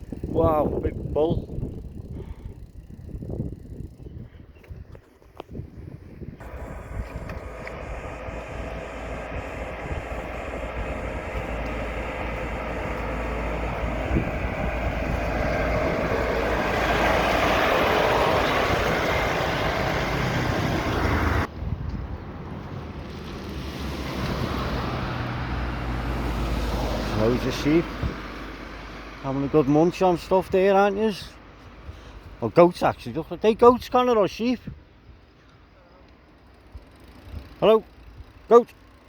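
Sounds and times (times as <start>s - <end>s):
motor vehicle passing: 6.3s - 29.6s.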